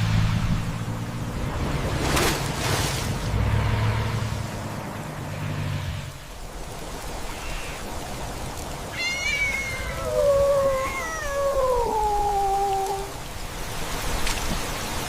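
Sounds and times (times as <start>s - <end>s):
kitten meowing: 8.9s - 13.1s.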